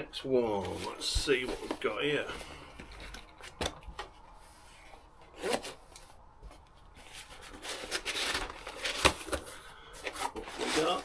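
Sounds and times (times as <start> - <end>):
cardboard box scraping: 10.1 - 11.0.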